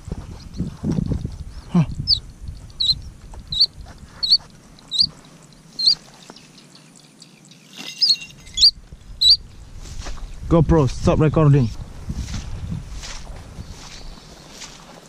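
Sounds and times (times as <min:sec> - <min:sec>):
sharp high-pitched bird calls: 0:02.0 - 0:09.5.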